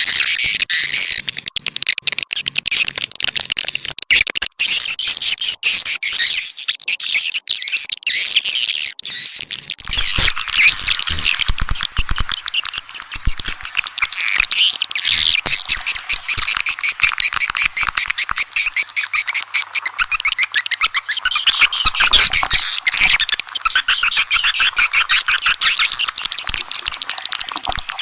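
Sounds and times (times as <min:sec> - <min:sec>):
swiftlets chattering: 0:09.8 - 0:28.0.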